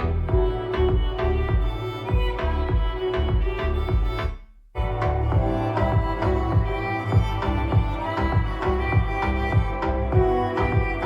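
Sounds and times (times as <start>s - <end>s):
instrumental music with strings: 0.0s - 11.0s.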